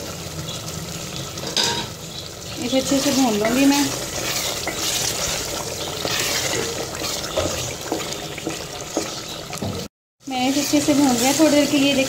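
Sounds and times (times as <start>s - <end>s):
potatoes sizzling in oil: 0.0s - 12.0s
wooden spoon knocking on pot: 7.2s - 9.9s.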